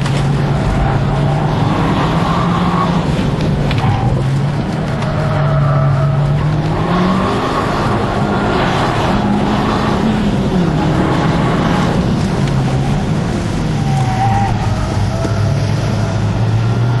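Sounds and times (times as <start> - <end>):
car engine revving: 0.0 - 17.0
road and wind rumble: 0.0 - 17.0.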